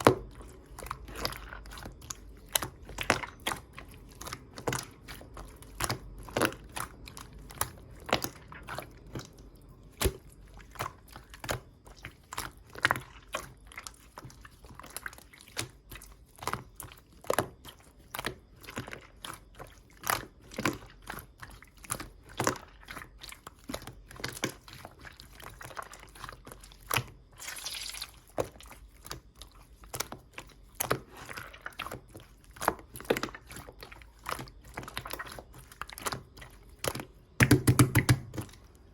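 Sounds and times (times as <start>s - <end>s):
slime squeezed by hand: 27.3s - 28.5s.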